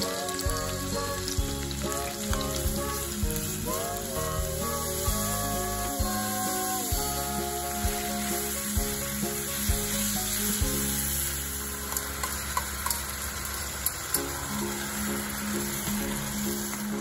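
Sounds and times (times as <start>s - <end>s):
vegetables sizzling in a pot: 0.0s - 17.0s
utensil clicking against pot: 11.9s - 13.1s.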